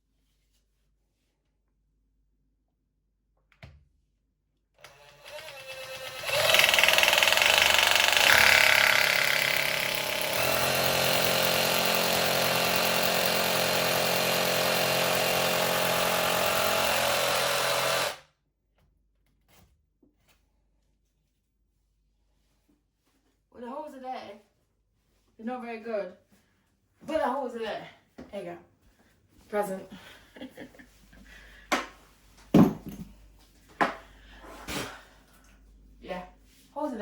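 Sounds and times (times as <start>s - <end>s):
hammer drill boring into wall: 4.8s - 18.2s.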